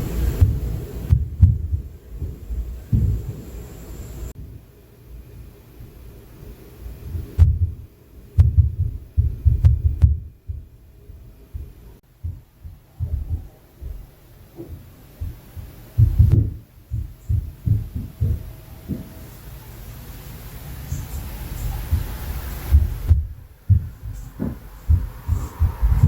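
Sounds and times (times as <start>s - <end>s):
dull thuds through ceiling: 0.0s - 3.5s, 7.0s - 19.4s, 21.2s - 26.0s
faint sharp knocks: 22.7s - 26.0s.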